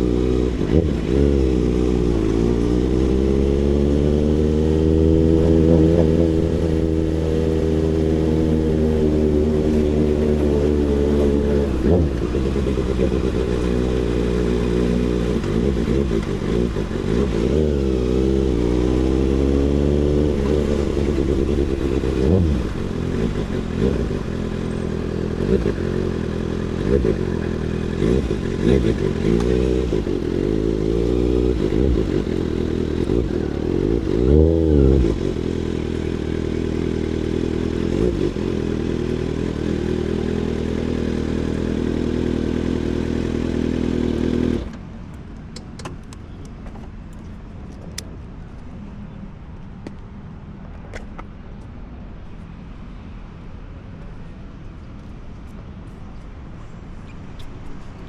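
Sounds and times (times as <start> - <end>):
motorcycle engine revving: 0.0 - 45.2.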